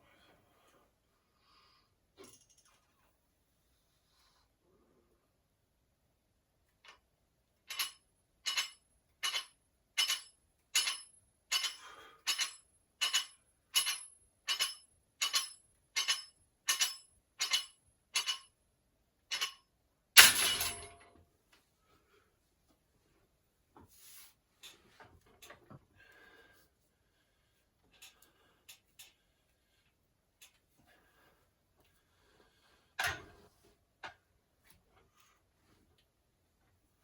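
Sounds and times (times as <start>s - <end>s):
loud metal clang: 20.2s - 21.0s.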